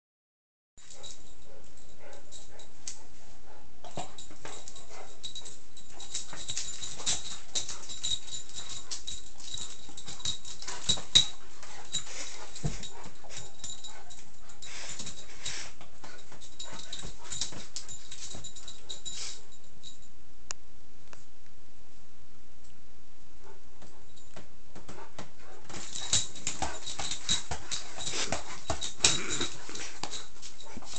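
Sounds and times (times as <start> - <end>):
knocks and scuffles: 10.8 - 14.1
puppy noises: 25.5 - 30.9.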